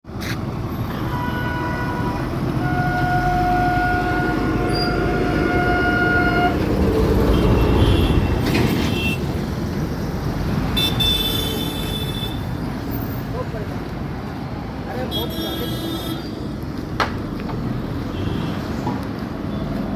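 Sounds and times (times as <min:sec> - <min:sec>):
road traffic: 0:00.0 - 0:19.9
vehicle horn: 0:00.9 - 0:06.6, 0:07.2 - 0:09.2, 0:10.8 - 0:12.5, 0:15.1 - 0:16.3, 0:18.1 - 0:18.6.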